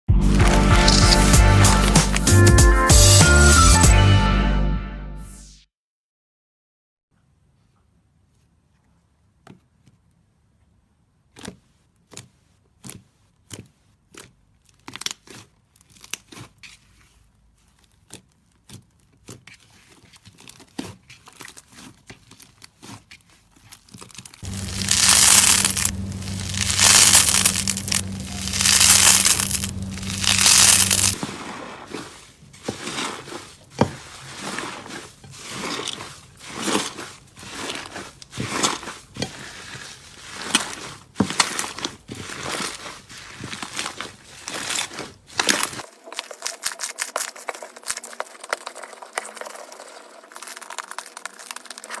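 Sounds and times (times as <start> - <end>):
slime squishes: 0.2 - 2.4, 11.3 - 52.0
low hum: 24.5 - 31.2.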